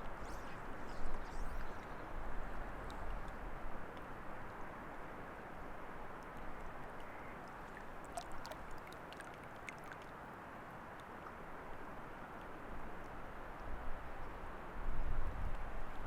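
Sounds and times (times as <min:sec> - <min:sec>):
faint rushing water: 0:00.0 - 0:15.0
small drips or clicks: 0:00.9 - 0:05.0, 0:06.2 - 0:10.2.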